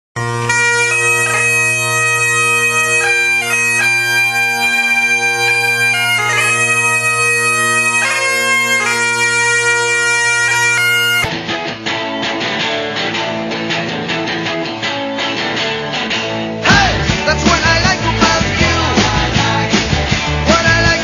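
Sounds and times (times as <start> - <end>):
bagpipe music: 0.2 - 11.3.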